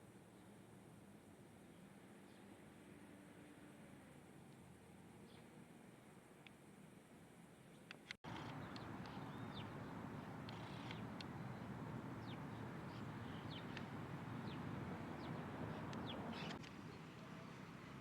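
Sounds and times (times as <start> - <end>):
small birds chirping: 8.2 - 17.5
steady background rush: 8.3 - 16.6.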